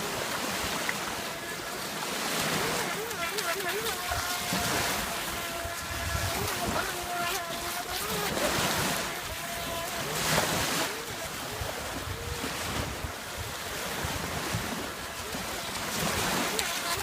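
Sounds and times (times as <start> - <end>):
surf: 0.0 - 17.0
electric motor whine: 1.0 - 12.5
wind buffeting microphone: 3.9 - 17.0.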